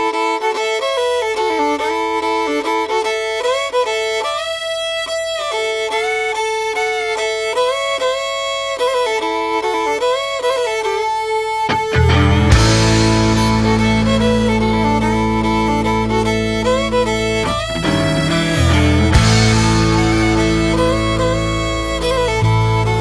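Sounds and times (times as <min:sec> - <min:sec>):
fiddle melody with sliding notes: 0:00.0 - 0:23.0.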